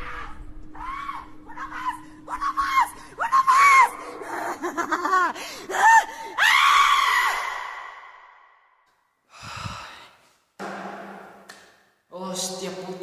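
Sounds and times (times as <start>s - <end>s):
person screaming and shrieking: 0.0s - 4.8s, 5.6s - 8.0s.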